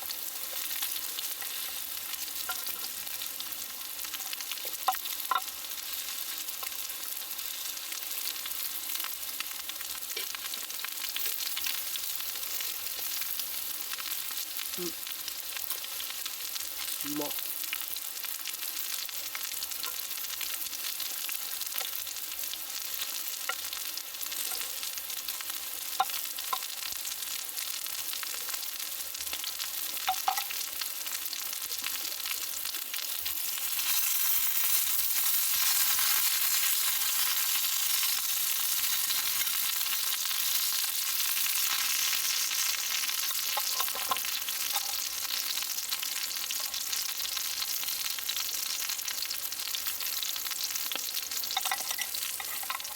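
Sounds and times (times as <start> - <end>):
food sizzling in a frying pan: 0.0 - 52.9
utensils clicking against pan: 43.5 - 45.0, 51.5 - 52.9.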